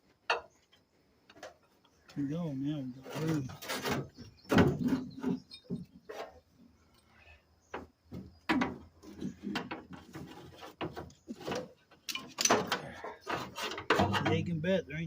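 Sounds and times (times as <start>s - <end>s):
metal parts and tools clanking: 3.0s - 6.4s, 8.5s - 14.6s.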